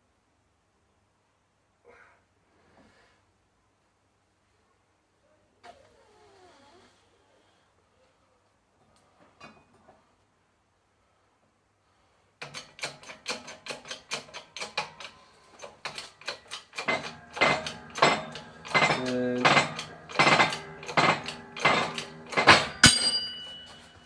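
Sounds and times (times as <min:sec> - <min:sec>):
press clicking and clattering: 0:12.4 - 0:23.9
ringing metal crack: 0:12.4 - 0:24.0.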